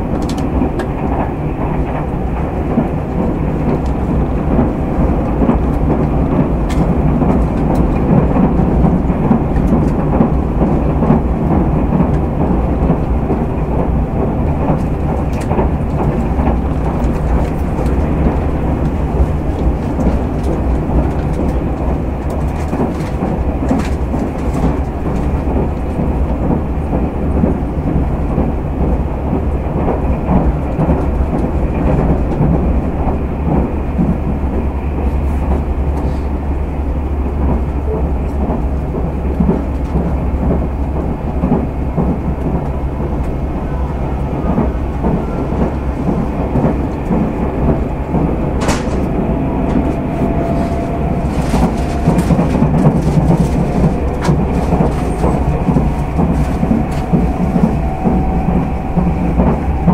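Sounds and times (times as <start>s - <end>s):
train wheels rumbling on rails: 0.0s - 59.9s
low hum: 41.9s - 59.9s.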